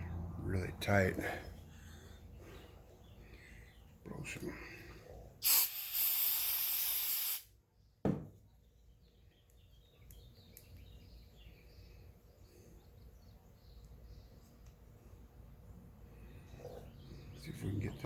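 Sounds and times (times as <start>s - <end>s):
compressed air hissing: 5.4s - 7.5s
short knock: 8.0s - 8.4s.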